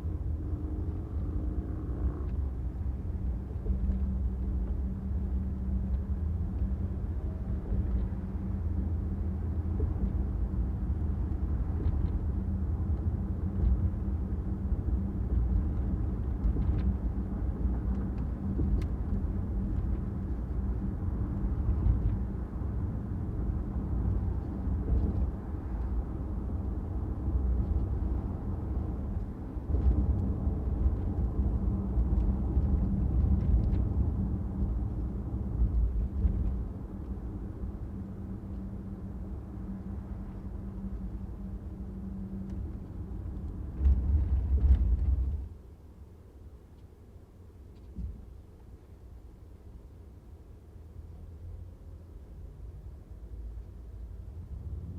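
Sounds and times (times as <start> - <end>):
car engine and tyre rumble: 0.0 - 54.9
faint steady hum: 0.0 - 54.9.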